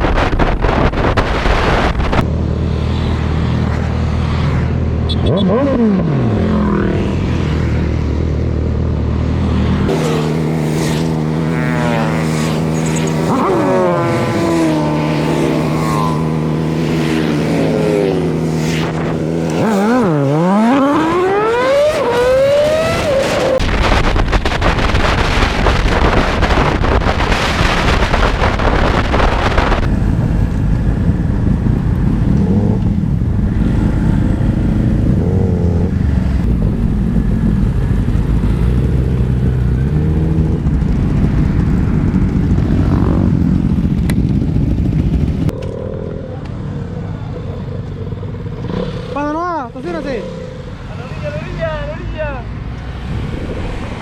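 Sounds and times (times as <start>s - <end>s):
wind rumble on microphone: 0.0s - 4.7s, 21.9s - 49.2s, 52.5s - 54.0s
motorcycle engine revving: 0.0s - 54.0s.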